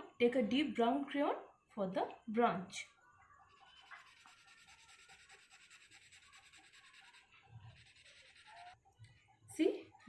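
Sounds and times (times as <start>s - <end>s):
crayon scribbling on paper: 3.6s - 8.8s.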